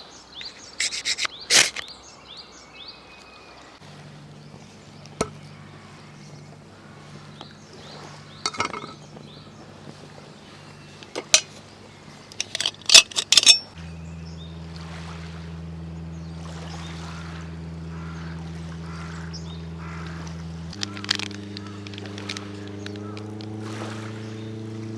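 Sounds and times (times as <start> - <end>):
low steady hum: 3.8 - 24.9
metal tableware clinking: 8.5 - 9.1, 11.0 - 11.6, 12.4 - 13.8.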